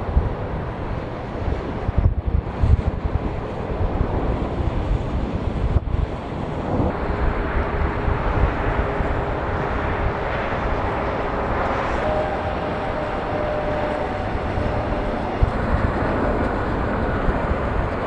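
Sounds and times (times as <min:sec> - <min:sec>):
wind buffeting microphone: 0:00.0 - 0:18.0
jet engines roaring: 0:02.4 - 0:18.0
faint engine tones: 0:06.7 - 0:18.0.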